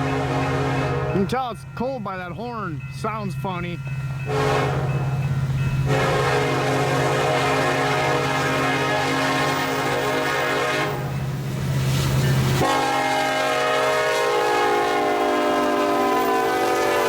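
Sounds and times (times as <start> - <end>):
locomotive air horn: 0.0 - 1.3, 4.3 - 5.1, 5.9 - 11.1, 12.6 - 17.0
train running noise: 0.0 - 17.0.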